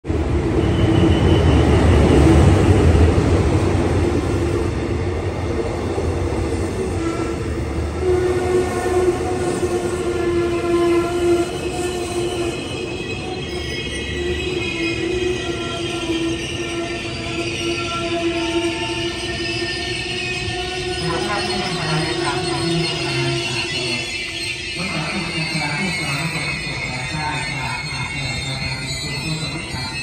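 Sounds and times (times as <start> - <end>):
high pitched wheel squeal: 9.6 - 30.0.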